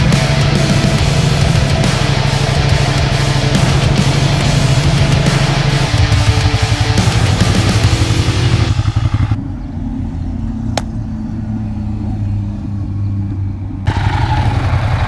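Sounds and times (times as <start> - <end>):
motorcycle engine at low revs: 0.0 - 15.0
sharp click: 10.8 - 11.0.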